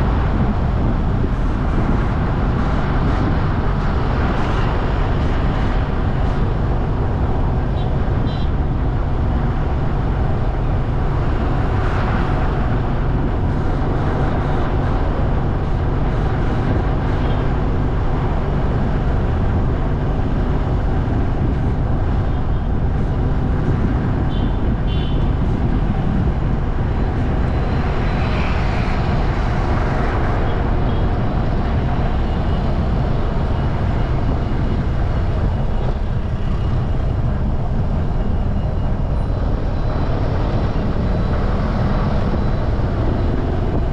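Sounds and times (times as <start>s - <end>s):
motorcycle engine and road noise: 0.0s - 43.9s.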